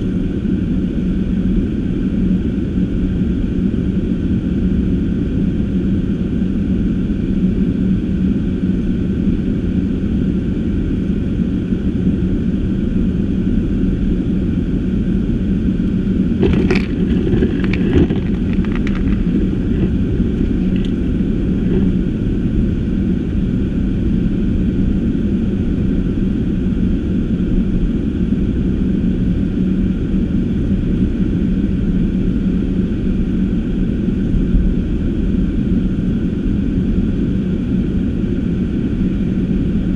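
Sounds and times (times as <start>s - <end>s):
car engine and tyre rumble: 13.0s - 32.6s
clicks and knocks: 16.4s - 21.0s.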